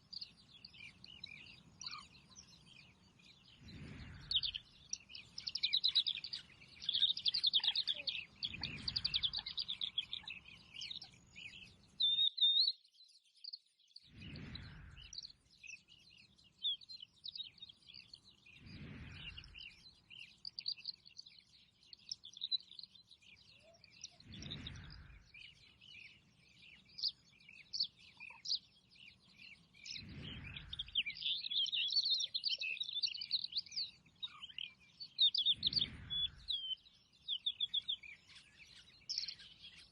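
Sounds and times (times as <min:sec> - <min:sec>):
small birds chirping: 0:00.0 - 0:39.9
soft rushing noise: 0:03.6 - 0:04.6, 0:18.6 - 0:19.8, 0:29.9 - 0:31.1.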